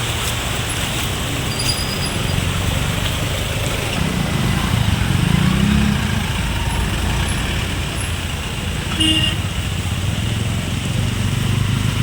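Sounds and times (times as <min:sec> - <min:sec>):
vehicle engines running: 0:00.0 - 0:12.0
car horn toot: 0:08.9 - 0:09.5.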